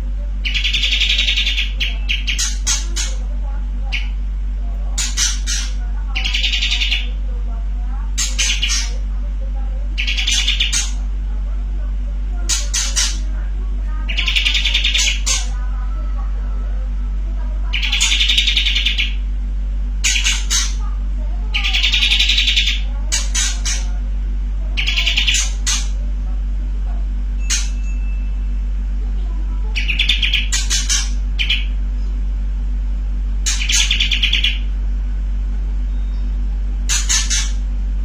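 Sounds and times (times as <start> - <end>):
steady low hum: 0.0 - 38.0
bulbul singing rattling trills: 0.4 - 4.2, 4.9 - 7.2, 8.1 - 9.1, 9.9 - 11.1, 12.4 - 16.2, 17.6 - 19.3, 20.0 - 24.0, 24.8 - 26.0, 27.3 - 28.6, 29.6 - 32.0, 33.4 - 34.8, 35.8 - 37.7.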